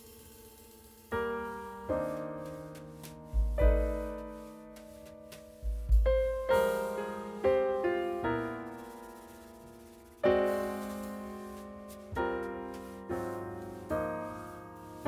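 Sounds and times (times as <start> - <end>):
gentle piano chords: 0.0 - 15.0
deep piano bass notes: 2.2 - 8.8.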